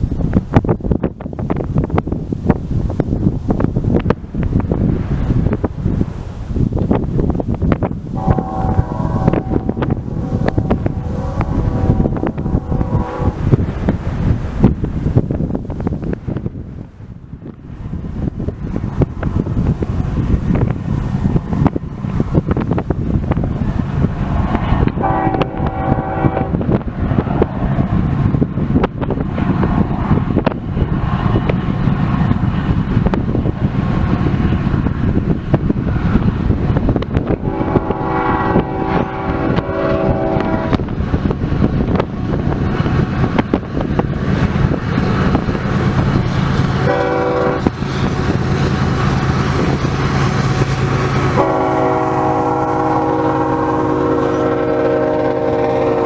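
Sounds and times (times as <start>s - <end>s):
wind buffeting microphone: 0.0s - 56.0s
diesel engine droning: 8.0s - 14.6s
locomotive horn blasts: 8.2s - 13.8s, 24.5s - 26.8s, 37.2s - 40.9s, 46.8s - 48.4s, 50.4s - 56.0s.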